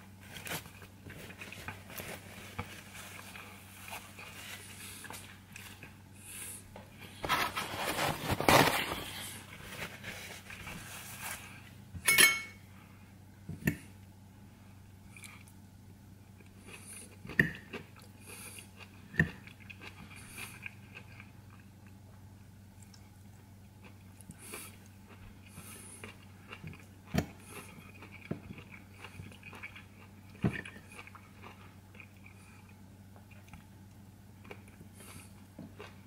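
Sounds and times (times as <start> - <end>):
steady low hum: 0.0 - 36.0
person chewing: 15.1 - 15.6, 16.4 - 22.0, 23.7 - 36.0.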